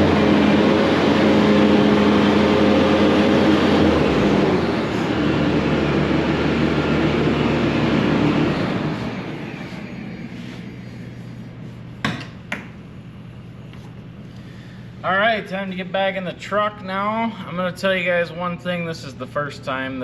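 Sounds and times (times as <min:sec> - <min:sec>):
skid loader engine revving: 0:00.0 - 0:11.2.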